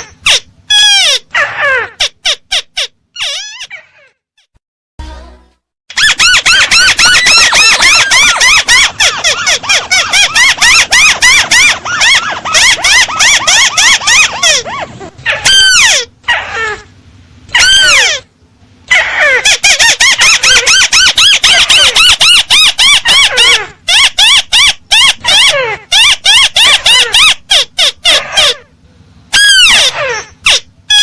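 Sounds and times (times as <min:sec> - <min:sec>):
crake calls: 0:05.9 - 0:16.9.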